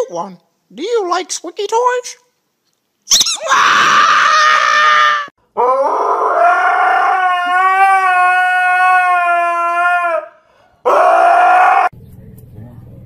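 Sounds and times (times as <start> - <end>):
husky howling: 3.4 - 11.9.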